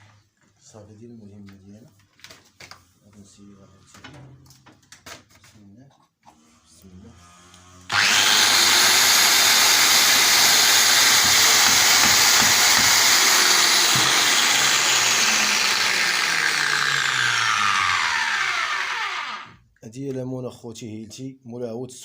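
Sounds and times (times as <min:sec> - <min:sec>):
power tool motor whining: 0:07.2 - 0:19.6.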